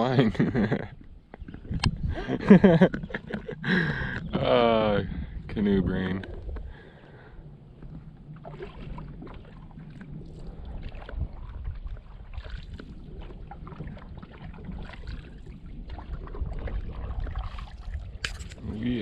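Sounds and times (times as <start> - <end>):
wind buffeting microphone: 0.0 - 19.0
paddle splashing through water: 7.7 - 19.0.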